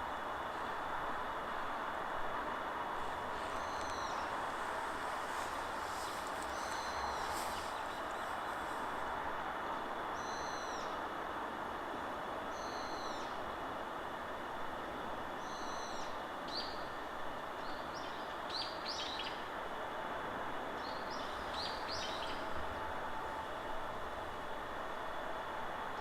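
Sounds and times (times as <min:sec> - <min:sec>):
wild birds calling: 0:03.3 - 0:08.9.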